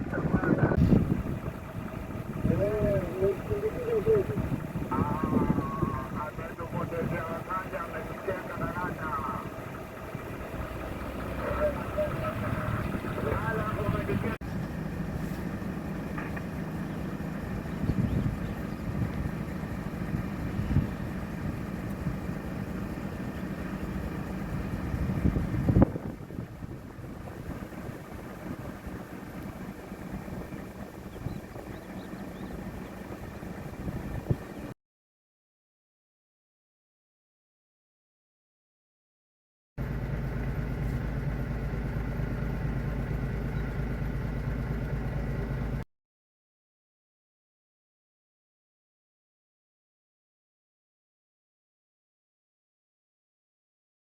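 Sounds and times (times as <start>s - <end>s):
vehicle engine idling: 0.0s - 34.8s, 39.8s - 45.8s.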